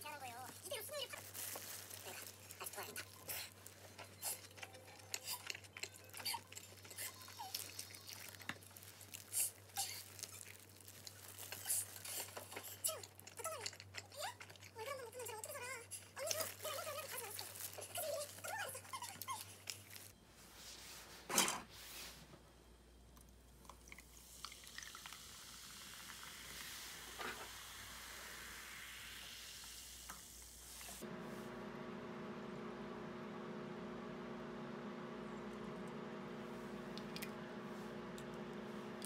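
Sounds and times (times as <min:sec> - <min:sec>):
plastic gloves crinkling: 0:00.0 - 0:13.3, 0:14.8 - 0:20.2
chewing and crunching pizza: 0:00.7 - 0:20.2.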